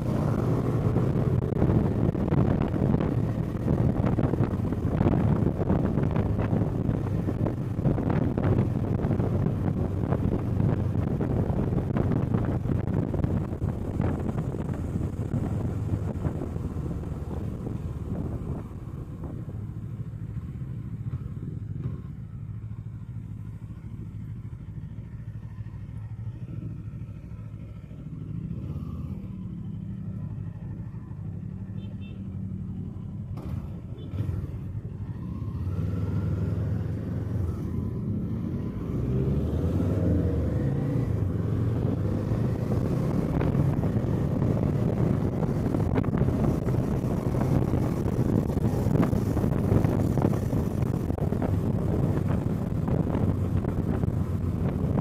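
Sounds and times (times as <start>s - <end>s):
wind noise: 0.0s - 22.2s, 33.4s - 55.0s
motorcycle engine running: 0.0s - 38.7s, 40.2s - 55.0s
road noise: 0.0s - 55.0s.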